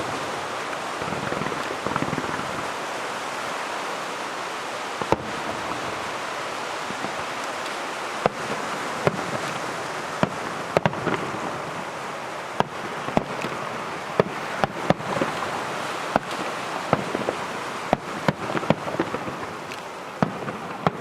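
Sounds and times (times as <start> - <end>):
firework shells bursting: 0.0 - 2.9, 12.6 - 21.0
rain-like hiss: 0.0 - 21.0.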